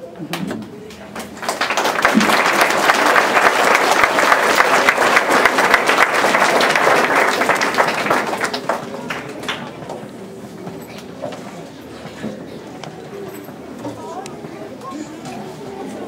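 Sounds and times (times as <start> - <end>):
audience applauding: 1.2 - 9.8.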